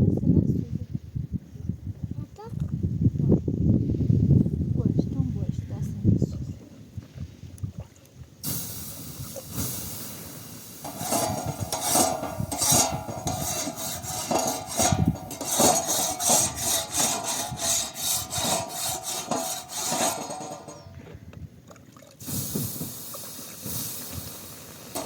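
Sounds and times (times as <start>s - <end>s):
rough rubbing strokes: 10.8s - 21.0s.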